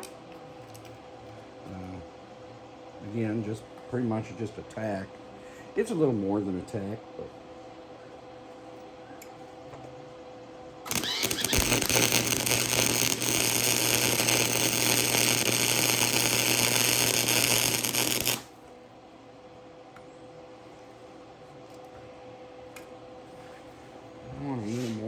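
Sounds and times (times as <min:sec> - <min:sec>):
welder low hum: 0:10.8 - 0:18.7
arc welder crackling hiss: 0:10.9 - 0:18.6.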